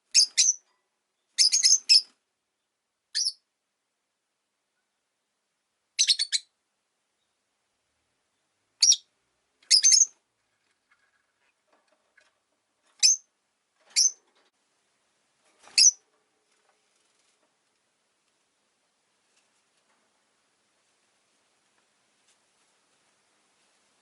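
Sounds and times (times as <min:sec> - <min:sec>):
lovebird chirping: 0:00.0 - 0:03.5, 0:06.0 - 0:06.6, 0:08.3 - 0:09.1, 0:09.7 - 0:10.2, 0:13.0 - 0:13.3, 0:13.9 - 0:14.2, 0:15.7 - 0:16.0.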